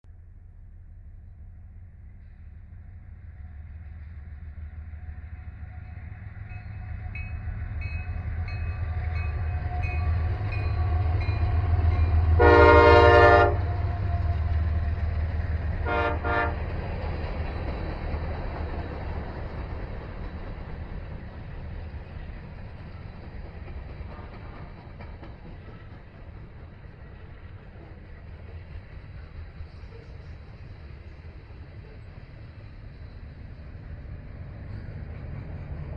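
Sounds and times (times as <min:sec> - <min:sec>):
diesel locomotive engine rumble: 0:00.0 - 0:35.9
locomotive horn: 0:12.3 - 0:14.4, 0:15.8 - 0:16.6.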